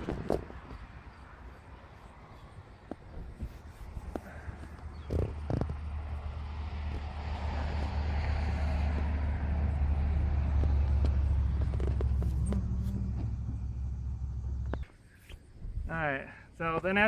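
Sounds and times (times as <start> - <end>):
road vehicle passing by: 0.0 - 14.9.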